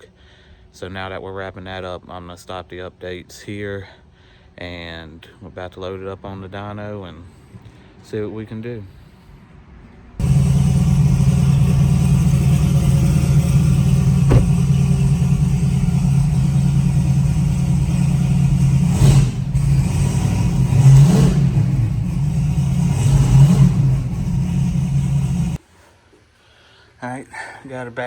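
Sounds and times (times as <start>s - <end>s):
engine throttle blips: 10.2s - 25.6s
truck engine idling loudly: 10.2s - 25.6s.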